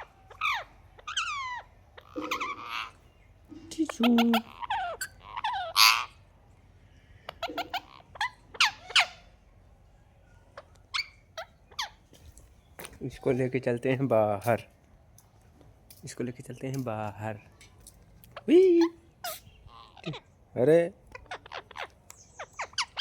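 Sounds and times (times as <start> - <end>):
parrot squawking and whistling: 0.0 - 3.0, 4.1 - 6.2, 7.3 - 9.3, 10.9 - 12.0, 21.1 - 23.0.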